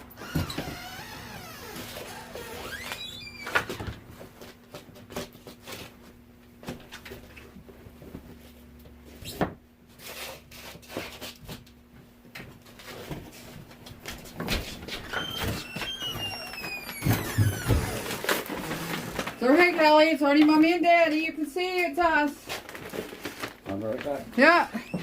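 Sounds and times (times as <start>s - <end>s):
high squeaks: 0.2s - 3.7s, 15.0s - 19.6s
grocery bags rustling: 15.2s - 25.0s.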